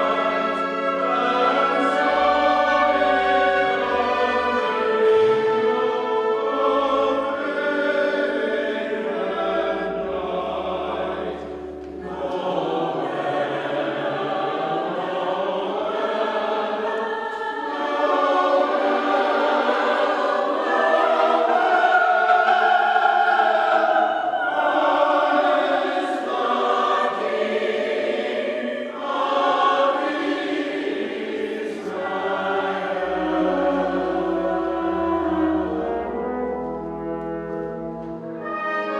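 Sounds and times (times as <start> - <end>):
choir singing: 0.0 - 38.9
instrumental accompaniment: 0.0 - 38.9.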